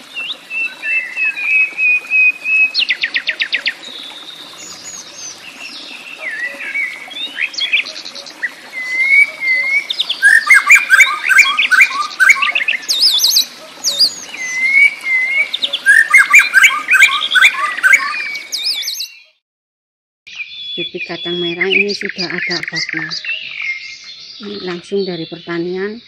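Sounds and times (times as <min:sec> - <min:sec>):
rapid bird chirping: 0:00.0 - 0:19.3
songbirds singing: 0:00.0 - 0:19.4, 0:20.3 - 0:26.0.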